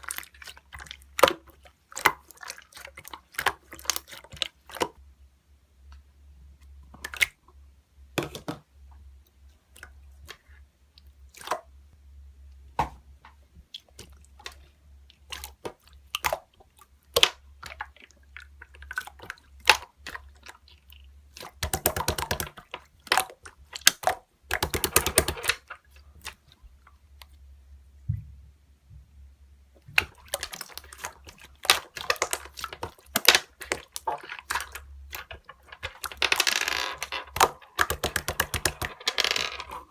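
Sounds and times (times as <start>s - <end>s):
slime clicking and popping: 21.4s - 25.6s, 37.3s - 38.9s.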